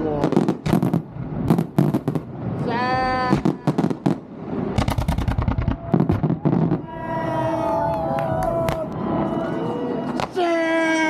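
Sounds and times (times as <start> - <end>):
fireworks bangs and crackles: 0.0 - 7.4
people calling out: 6.7 - 11.0.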